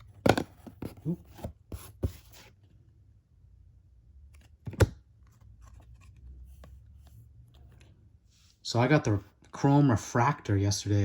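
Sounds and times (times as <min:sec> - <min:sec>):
cards rustling and sliding: 0:04.3 - 0:08.6.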